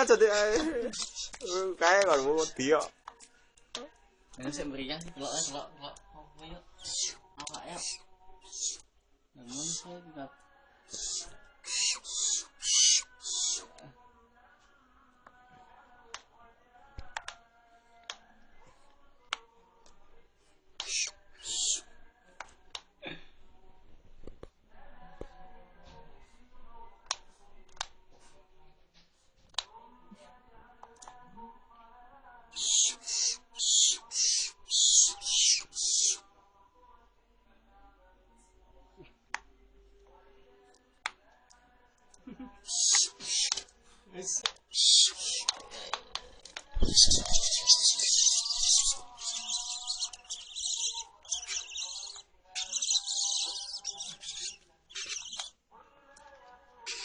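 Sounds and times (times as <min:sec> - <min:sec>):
barn owl screeching: 0:00.0 - 0:02.8, 0:05.2 - 0:05.7, 0:06.8 - 0:08.8, 0:09.5 - 0:09.8, 0:10.9 - 0:13.7, 0:20.8 - 0:21.9, 0:32.5 - 0:36.2, 0:42.7 - 0:43.6, 0:44.2 - 0:45.6, 0:46.8 - 0:55.5.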